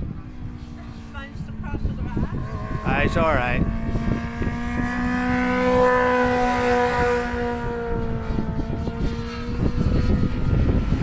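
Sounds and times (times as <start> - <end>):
vehicle engine drone: 0.0 - 11.0
wind buffeting microphone: 0.0 - 11.0.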